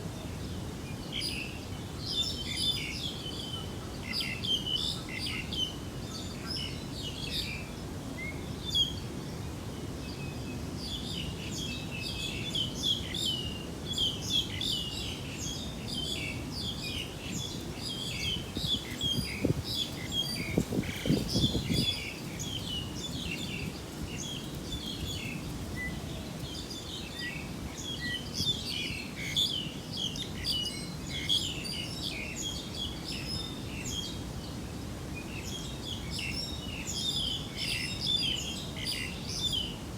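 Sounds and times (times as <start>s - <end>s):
steady low background noise: 0.0s - 39.9s
small birds chirping: 10.9s - 34.6s.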